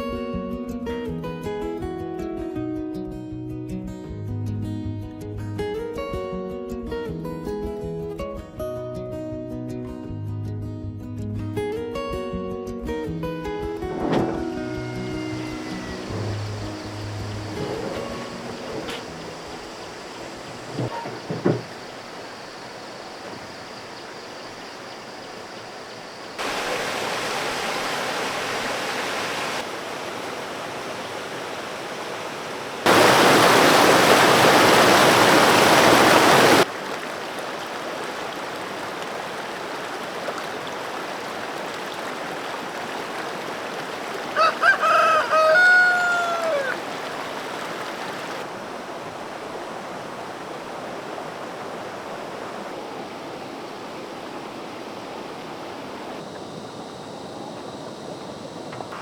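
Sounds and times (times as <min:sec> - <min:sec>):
rooster crowing: 0:14.7 - 0:19.4, 0:43.3 - 0:47.7.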